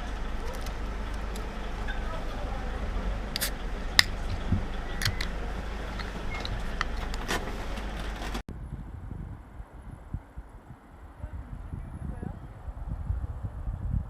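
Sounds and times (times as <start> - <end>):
vehicle low rumble with wind: 0.0 - 14.0
sharp clicks or knocks: 3.4 - 7.4.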